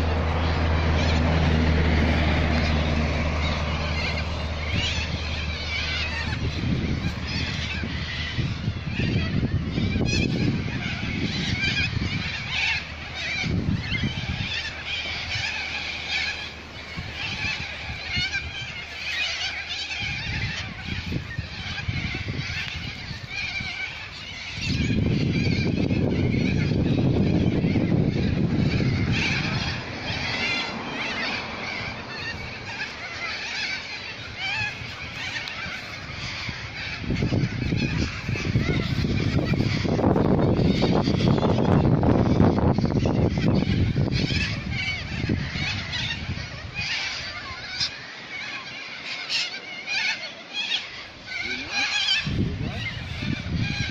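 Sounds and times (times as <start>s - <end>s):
low uneven rumble: 0.0s - 48.7s
birds chirping and squawking: 0.0s - 53.9s.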